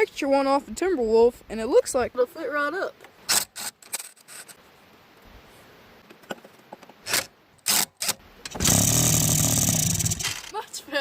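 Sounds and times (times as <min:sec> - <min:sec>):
engine cranking: 0:07.1 - 0:10.6.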